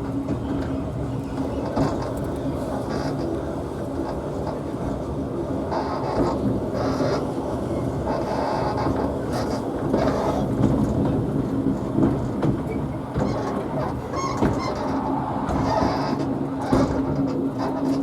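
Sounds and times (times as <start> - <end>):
steam train rumbling: 0.0 - 18.0.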